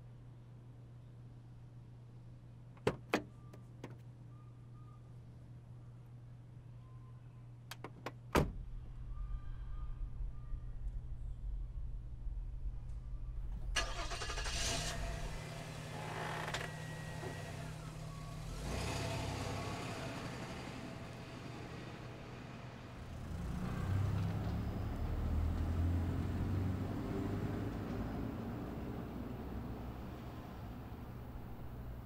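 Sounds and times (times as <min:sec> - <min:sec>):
car engine starting: 0:13.5 - 0:32.0
car driving past: 0:13.8 - 0:32.0.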